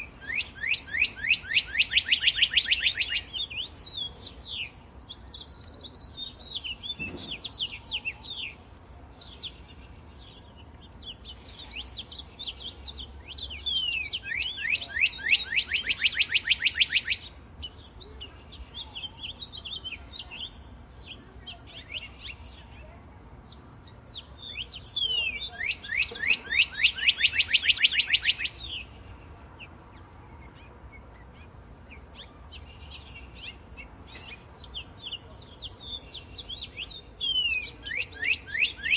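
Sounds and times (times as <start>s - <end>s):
bird rapid trill: 0.0s - 3.8s, 13.0s - 17.3s, 24.5s - 28.9s
songbirds chirping: 0.0s - 38.9s.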